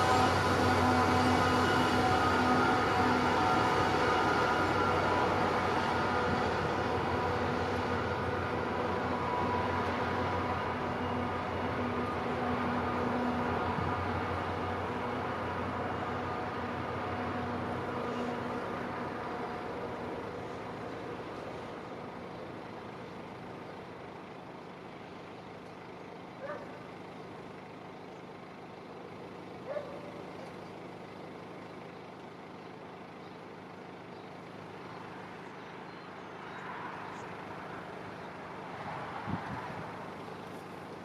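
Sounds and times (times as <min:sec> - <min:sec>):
sharp train squeaks: 0:00.0 - 0:21.7
freight train rumble: 0:00.0 - 0:41.0.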